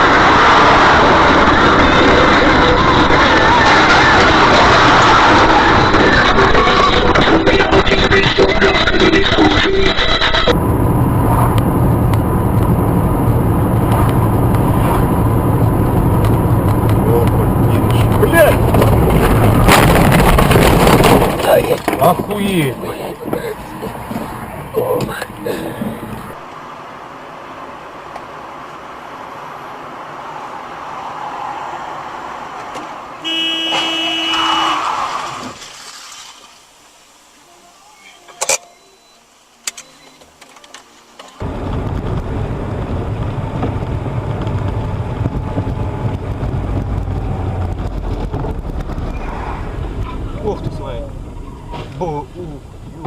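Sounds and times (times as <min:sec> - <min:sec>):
car engine and road noise: 0:00.0 - 0:53.0
car horn blast: 0:33.2 - 0:34.9
faint steady tone: 0:36.9 - 0:40.4.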